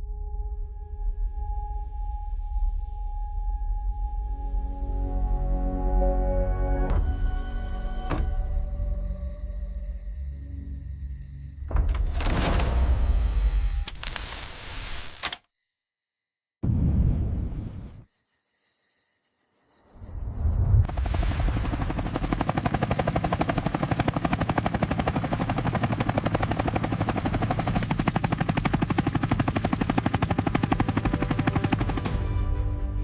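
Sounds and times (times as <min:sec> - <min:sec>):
helicopter rotor chop: 0:20.9 - 0:32.1.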